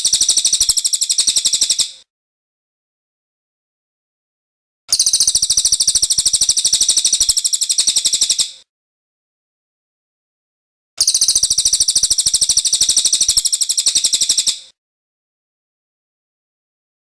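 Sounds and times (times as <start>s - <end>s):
songbird trilling: 0.0s - 2.0s, 4.9s - 8.5s, 11.0s - 14.7s.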